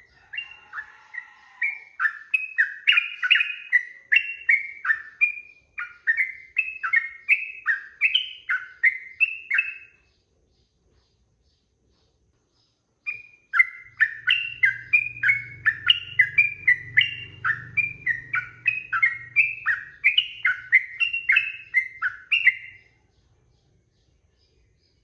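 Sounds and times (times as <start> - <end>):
bulbul singing whistled notes: 0.0 - 10.0, 13.1 - 23.0.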